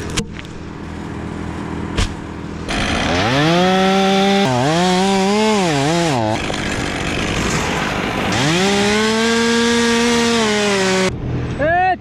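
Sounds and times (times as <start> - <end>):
chainsaw at full throttle: 2.7 - 11.1.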